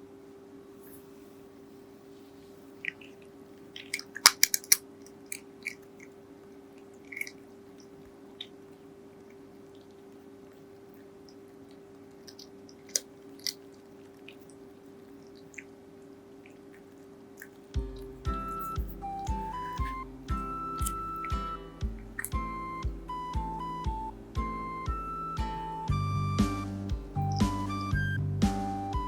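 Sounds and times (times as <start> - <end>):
steady low hum: 0.0 - 29.0
cat crunching dry kibble: 2.9 - 15.5.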